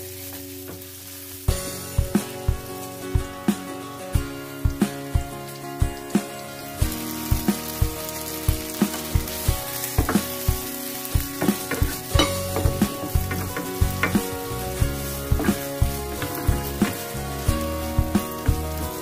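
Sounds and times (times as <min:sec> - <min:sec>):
okra sizzling in hot oil: 0:00.0 - 0:19.0
wooden spatula scraping pan: 0:11.4 - 0:19.0.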